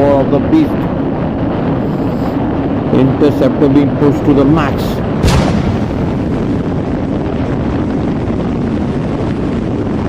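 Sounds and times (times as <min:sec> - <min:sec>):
wind rushing over microphone: 0:00.4 - 0:10.0.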